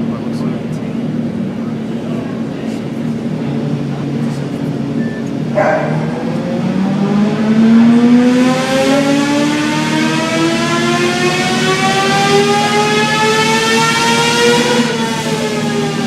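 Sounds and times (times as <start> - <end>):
motorcycle engine revving on dynamometer: 3.5 - 16.0.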